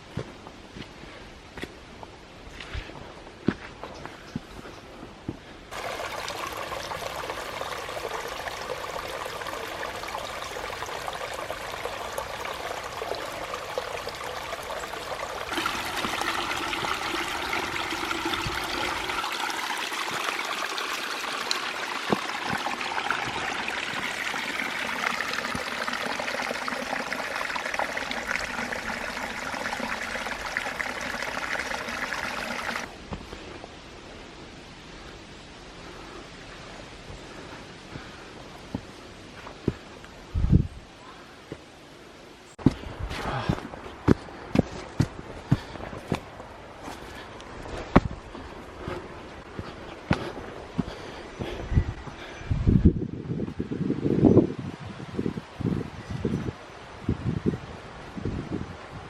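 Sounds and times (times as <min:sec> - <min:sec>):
mountain stream rushing: 0:05.7 - 0:33.3.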